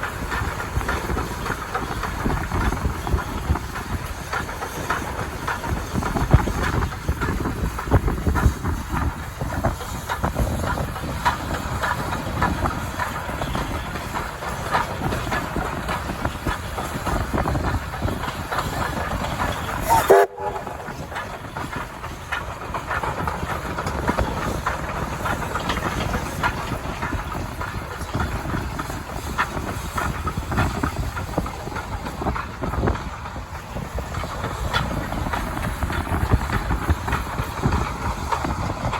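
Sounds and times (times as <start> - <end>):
steam train running on track: 0.0 - 38.9
wheels clattering on rails: 0.0 - 38.9.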